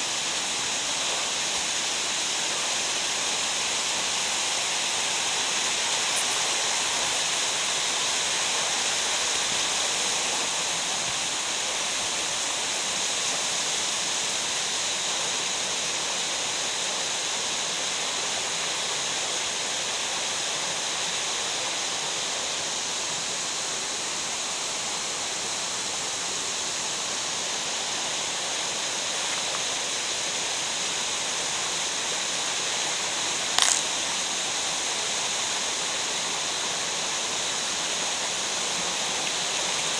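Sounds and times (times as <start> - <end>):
sharp click: 33.6 - 34.0.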